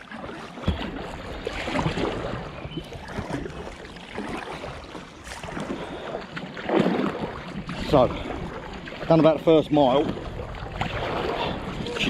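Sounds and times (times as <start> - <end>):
paddle splashing in water: 0.0 - 12.0
wind rumble on microphone: 7.0 - 12.0.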